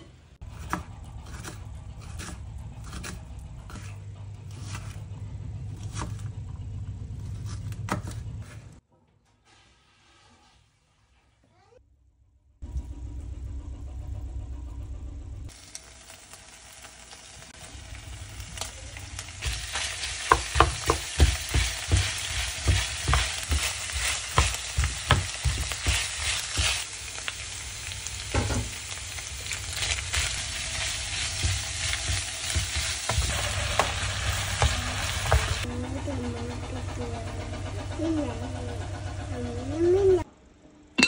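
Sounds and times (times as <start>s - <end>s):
meat sizzling in a frying pan: 15.5s - 35.7s
spatula stirring: 19.4s - 26.9s, 29.7s - 35.7s.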